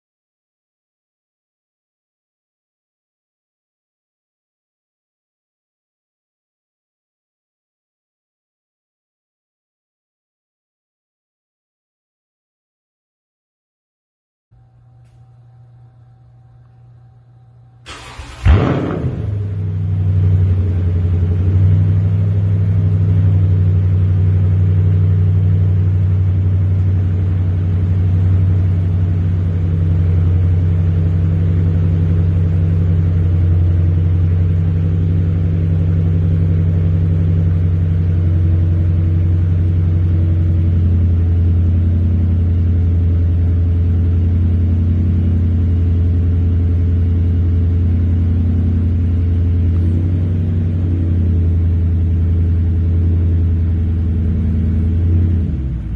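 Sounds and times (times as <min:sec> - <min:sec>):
deep exhaust rumble: 0:14.6 - 0:55.9.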